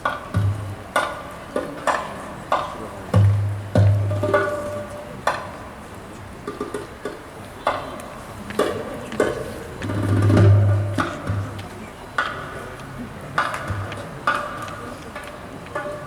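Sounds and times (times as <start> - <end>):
sharp percussion strikes: 0.0 - 5.6.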